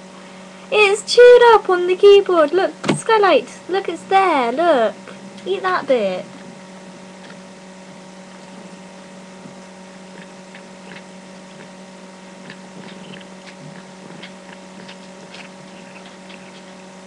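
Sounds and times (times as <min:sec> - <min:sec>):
steady electrical hum: 0:00.0 - 0:17.0
cat chewing and smacking: 0:08.3 - 0:11.8, 0:12.4 - 0:17.0.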